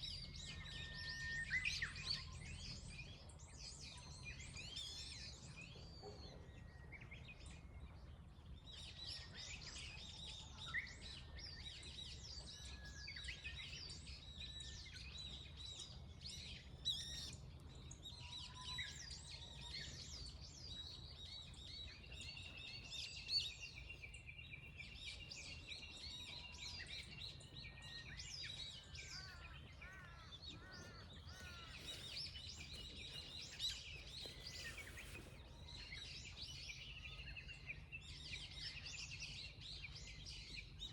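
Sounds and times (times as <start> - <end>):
birds chirping and singing: 15.2 - 40.9.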